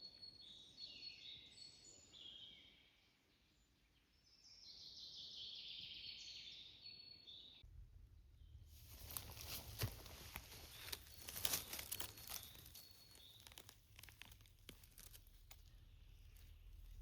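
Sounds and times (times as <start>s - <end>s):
rustling of dry leaf litter: 8.7s - 17.0s
twigs snapping: 8.9s - 17.0s.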